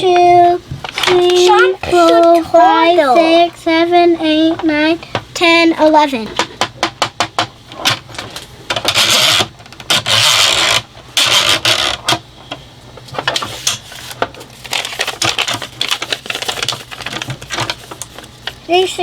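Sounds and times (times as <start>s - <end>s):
plastic rustling: 13.0s - 19.0s.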